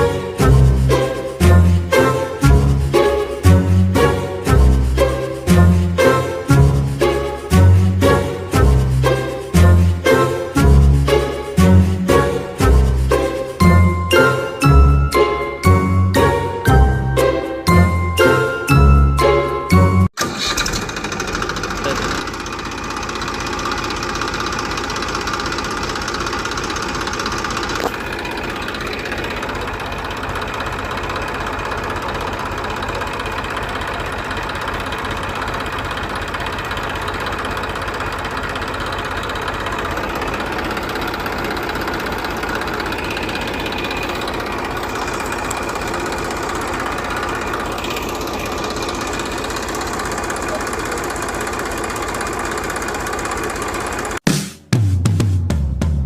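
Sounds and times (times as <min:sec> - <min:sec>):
small engine knocking: 0:20.2 - 0:54.2.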